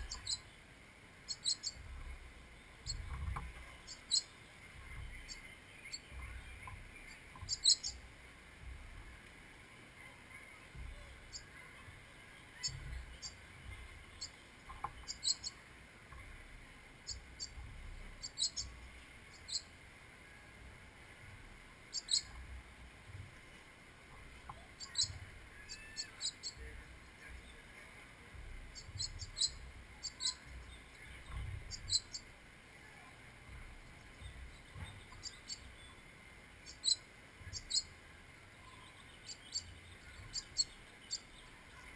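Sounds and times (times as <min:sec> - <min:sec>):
faint low rumble: 0:00.0 - 0:41.9
small birds chirping: 0:00.0 - 0:41.9.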